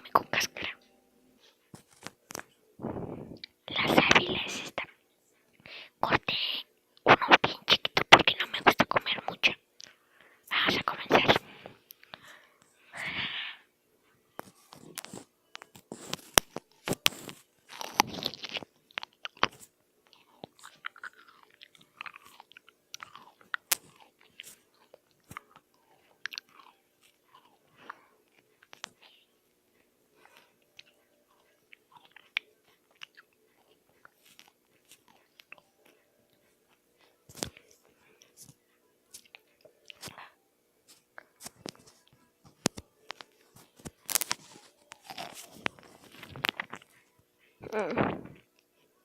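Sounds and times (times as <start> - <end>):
food being chewed: 14.3 - 47.3.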